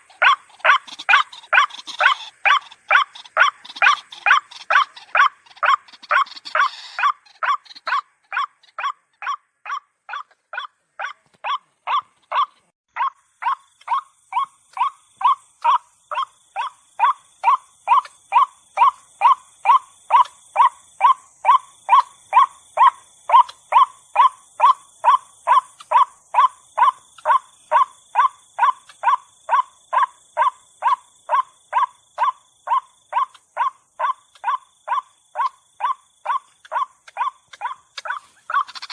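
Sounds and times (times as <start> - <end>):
waterhen calling harsh notes: 33.2 - 38.9.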